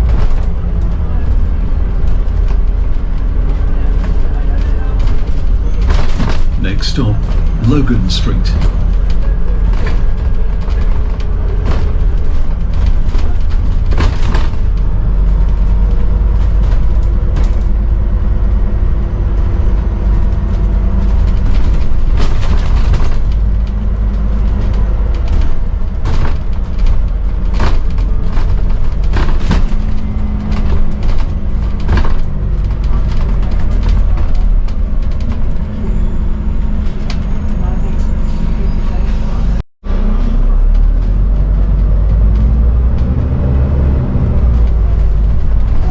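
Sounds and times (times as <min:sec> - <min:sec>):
bus body rattles and knocks: 0:00.0 - 0:06.6, 0:08.6 - 0:39.6, 0:40.2 - 0:45.9
bus engine rumble: 0:00.0 - 0:45.9.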